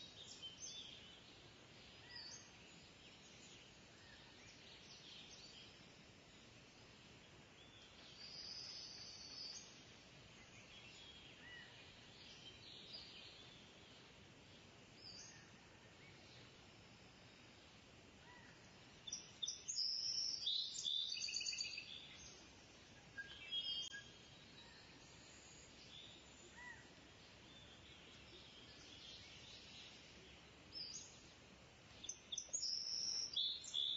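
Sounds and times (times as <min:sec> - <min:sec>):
outdoor background noise: 0:00.0 - 0:33.9
birds chirping and trilling: 0:00.1 - 0:06.5, 0:18.2 - 0:33.9.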